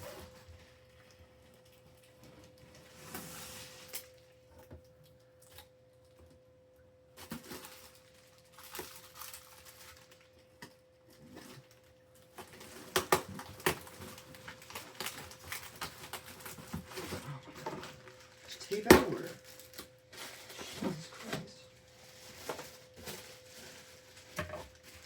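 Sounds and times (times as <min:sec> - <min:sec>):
plastic wrap crinkling: 0:07.2 - 0:25.0
packing tape peeling and tearing: 0:12.4 - 0:17.0.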